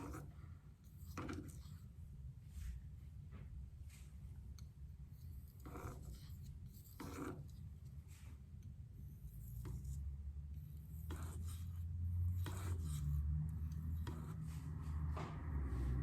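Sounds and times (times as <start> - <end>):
knife scraping on whetstone: 5.2 - 7.6, 10.7 - 14.6.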